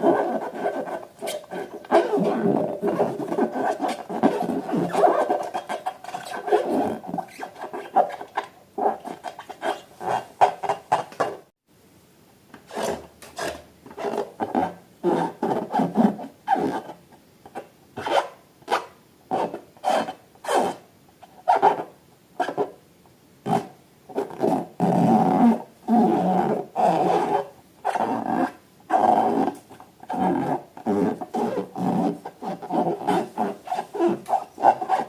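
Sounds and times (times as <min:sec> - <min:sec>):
balloons and slime rubbing: 0:00.0 - 0:11.1, 0:30.2 - 0:35.0.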